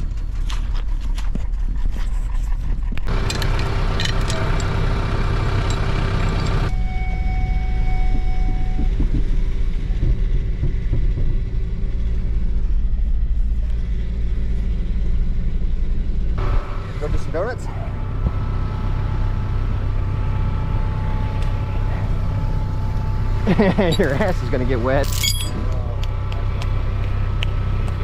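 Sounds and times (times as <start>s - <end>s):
engine low rumble: 0.0s - 28.0s
high hum with overtones: 16.4s - 24.3s.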